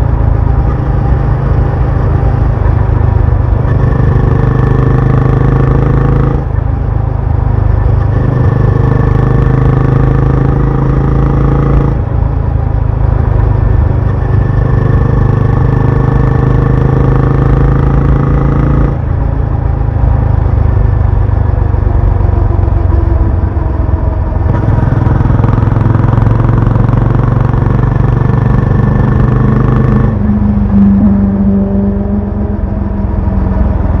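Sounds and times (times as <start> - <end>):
motorcycle engine exhaust: 0.0 - 34.0.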